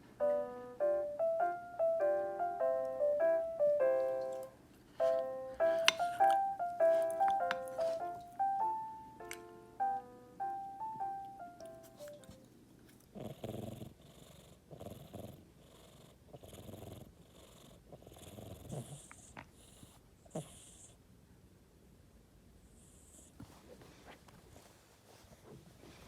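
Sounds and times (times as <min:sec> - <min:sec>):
cat purring: 0:13.0 - 0:21.0.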